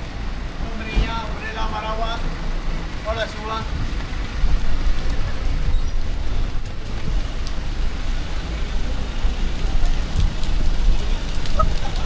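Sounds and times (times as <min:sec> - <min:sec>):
low rumble of traffic: 0:00.0 - 0:12.0
rain hissing: 0:00.0 - 0:12.0
light ticks: 0:06.1 - 0:07.6.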